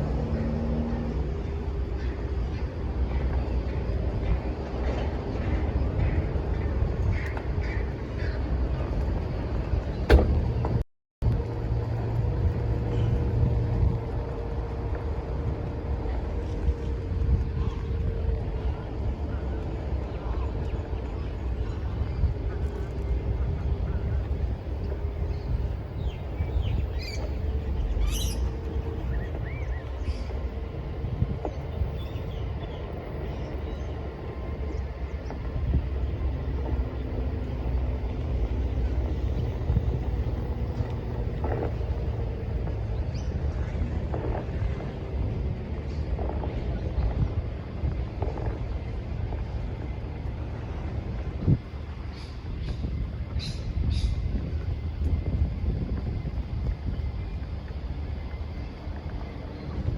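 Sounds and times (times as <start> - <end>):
outdoor vehicle noise: 0.0 - 59.9
wind buffeting microphone: 0.0 - 59.9
bird chirps: 26.0 - 30.3.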